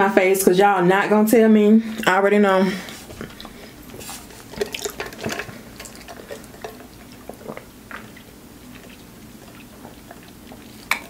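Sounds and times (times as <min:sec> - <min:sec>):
mouth chewing sounds: 0:03.0 - 0:11.0.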